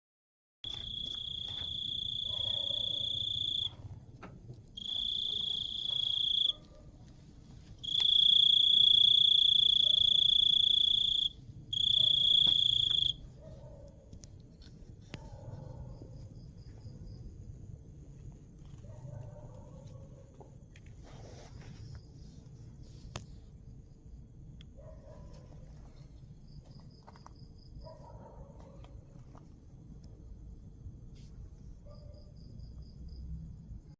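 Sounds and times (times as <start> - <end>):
high chirping insect: 0.6 - 3.8, 4.8 - 6.6, 7.8 - 13.3
crickets trilling: 0.6 - 6.7, 7.8 - 33.9.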